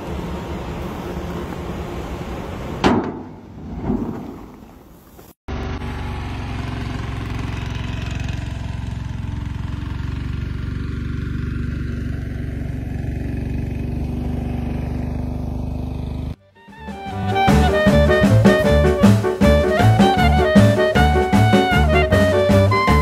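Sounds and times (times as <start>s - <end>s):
small engine running: 5.5s - 16.4s.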